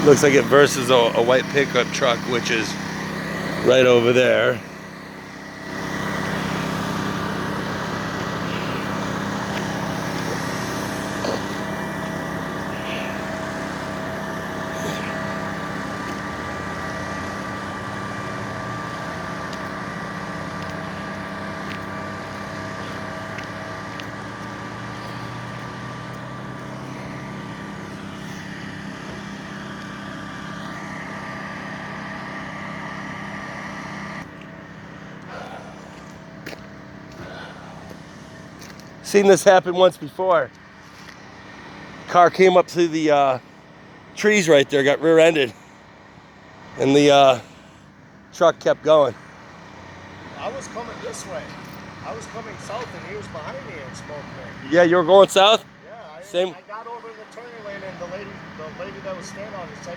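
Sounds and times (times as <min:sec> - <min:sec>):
vehicle engine humming with whine: 0:00.0 - 0:59.9.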